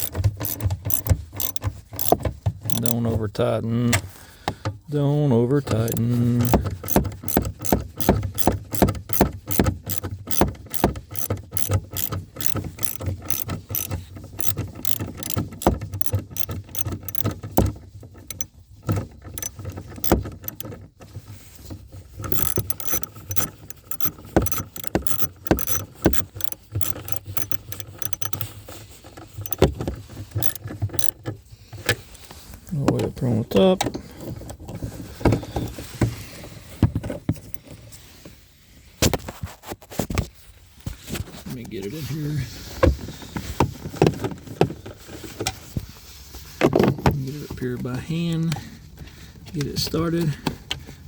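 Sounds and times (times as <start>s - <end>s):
socket ratchet clicking: 0.0s - 3.0s, 5.7s - 18.5s, 19.3s - 20.8s, 22.2s - 28.6s, 29.3s - 31.2s.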